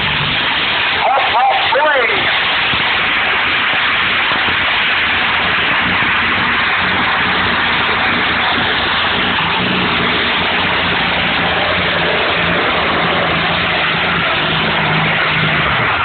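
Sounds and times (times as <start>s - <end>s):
tractor engine at full power: 0.0s - 16.0s.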